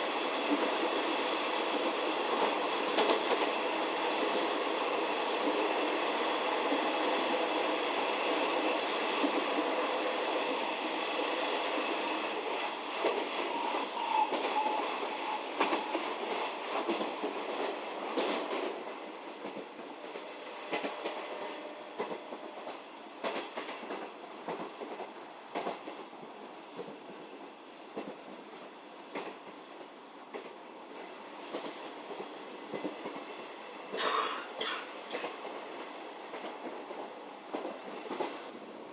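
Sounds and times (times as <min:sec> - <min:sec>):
train buzzing hum: 0:00.0 - 0:38.9.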